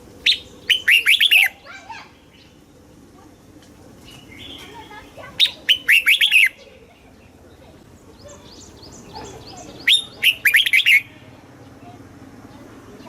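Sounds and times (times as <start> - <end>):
bird singing whistled notes: 0.2 - 2.6, 4.1 - 6.7, 8.2 - 11.3
faint bird chirps: 0.2 - 12.7.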